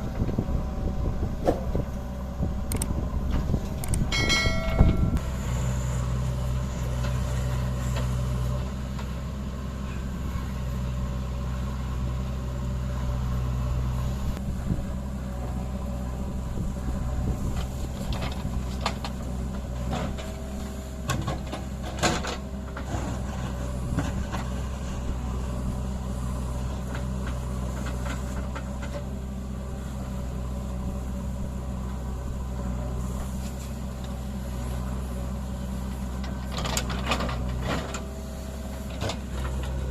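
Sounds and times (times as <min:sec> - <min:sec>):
diesel engine running: 0:00.0 - 0:39.9
metal clanks and knocks: 0:03.8 - 0:05.2.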